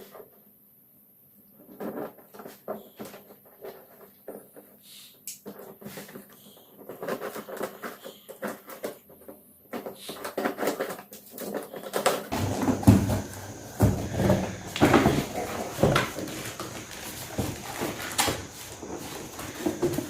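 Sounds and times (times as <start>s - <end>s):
packaging clicks and rustles: 10.3s - 20.0s.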